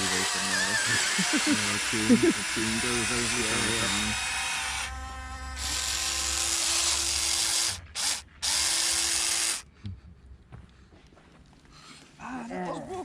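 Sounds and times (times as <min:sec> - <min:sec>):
electric motors whirring: 0:00.0 - 0:09.7.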